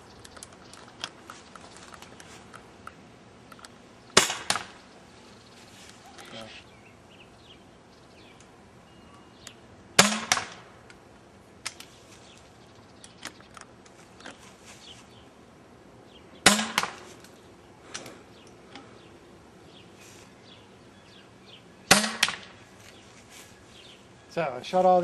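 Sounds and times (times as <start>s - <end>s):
paintball pistol shots: 4.2s - 4.8s, 10.0s - 10.7s, 16.4s - 17.0s, 21.9s - 22.6s.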